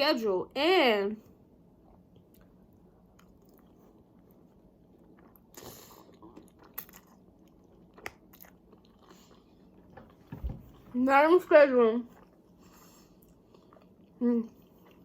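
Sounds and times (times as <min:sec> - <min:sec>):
faint chewing of food: 0:01.8 - 0:10.9, 0:12.0 - 0:15.0.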